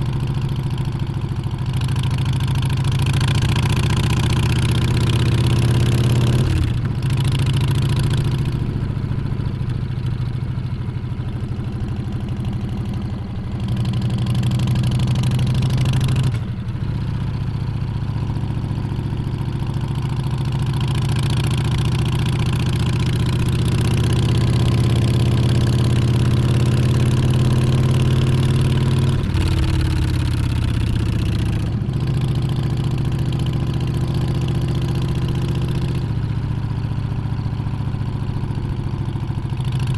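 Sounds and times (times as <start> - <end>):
motorcycle engine revving: 1.7 - 9.3, 19.5 - 36.2.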